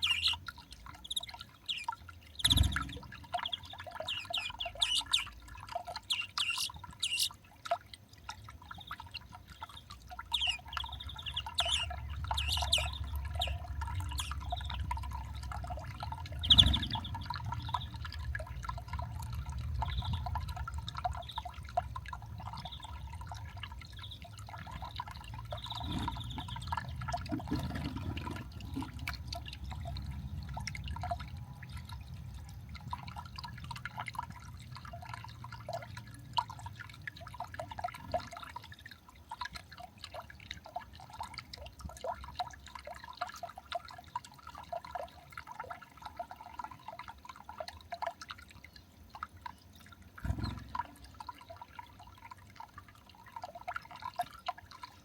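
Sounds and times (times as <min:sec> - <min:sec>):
small birds chirping: 0:00.0 - 0:07.5, 0:08.2 - 0:18.3, 0:19.8 - 0:21.7, 0:22.4 - 0:27.8.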